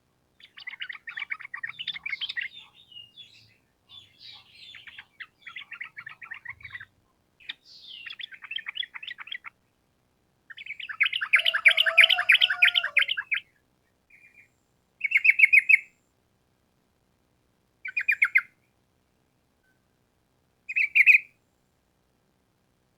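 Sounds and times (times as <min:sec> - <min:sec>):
bird chattering song: 0:00.4 - 0:09.6, 0:10.5 - 0:13.5, 0:14.1 - 0:15.9, 0:17.8 - 0:18.5, 0:20.7 - 0:21.3.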